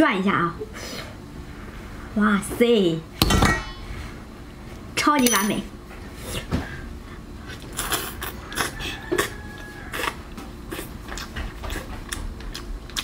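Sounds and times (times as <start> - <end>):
mouth sucking and chewing: 7.5 - 13.0.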